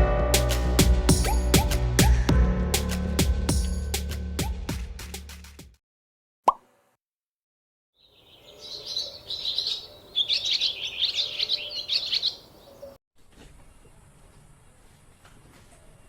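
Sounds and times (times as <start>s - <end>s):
birds twittering: 8.0s - 13.0s.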